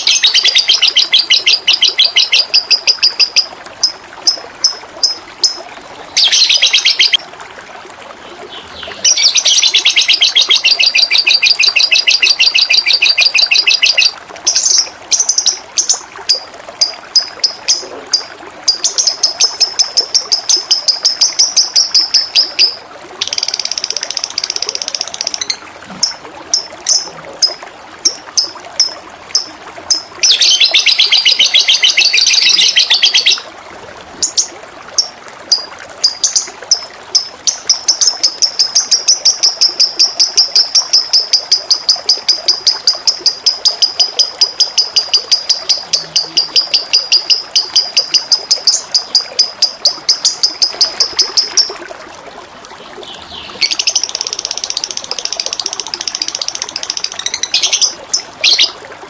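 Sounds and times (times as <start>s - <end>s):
songbird chirping and trilling: 0.0s - 7.2s, 8.3s - 33.5s, 53.0s - 58.8s
flowing water: 0.0s - 59.0s.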